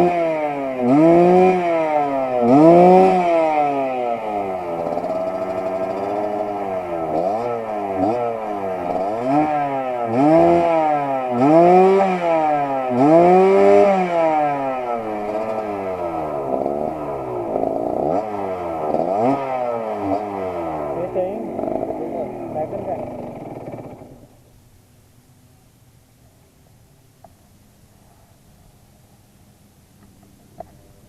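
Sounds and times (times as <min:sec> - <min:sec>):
motorcycle engine revving: 0:00.0 - 0:24.6.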